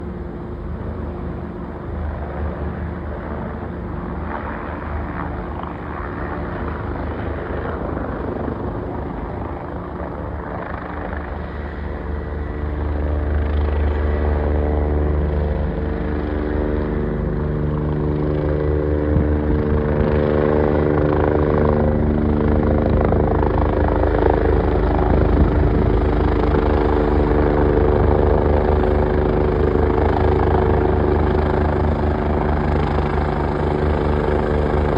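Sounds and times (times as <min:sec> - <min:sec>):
helicopter rotor and turbine: 0:00.0 - 0:34.9.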